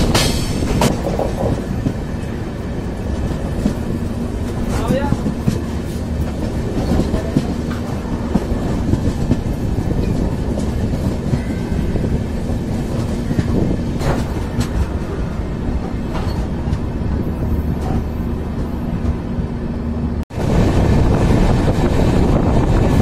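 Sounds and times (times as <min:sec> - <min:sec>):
clacks over rail joints: 0:00.0 - 0:15.2, 0:15.8 - 0:16.9
train wheels rumbling on rails: 0:00.0 - 0:23.0.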